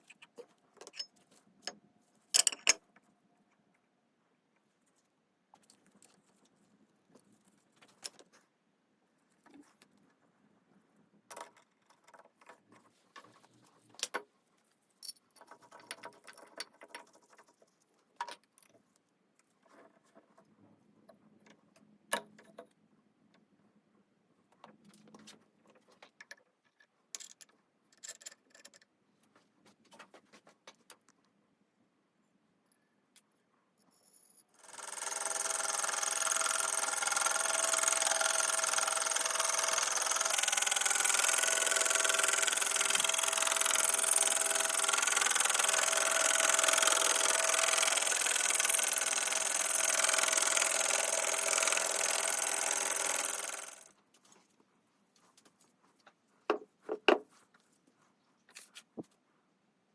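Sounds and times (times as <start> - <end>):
metal parts clicking and knocking: 0.0 - 2.9, 15.0 - 17.5, 26.1 - 28.9, 34.6 - 53.9.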